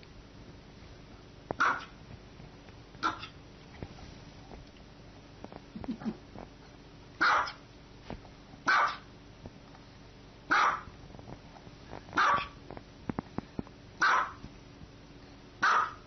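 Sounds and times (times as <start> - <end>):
small dog barking: 1.6 - 2.0, 3.0 - 3.4, 7.2 - 7.6, 8.7 - 9.1, 10.5 - 10.9, 12.2 - 12.6, 14.0 - 14.4, 15.6 - 16.0.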